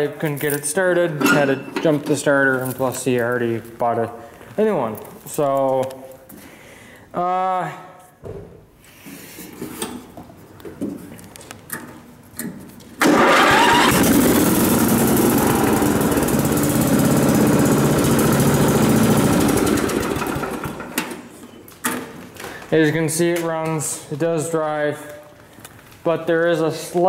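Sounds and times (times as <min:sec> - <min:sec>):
riding mower engine running: 0:13.0 - 0:21.2.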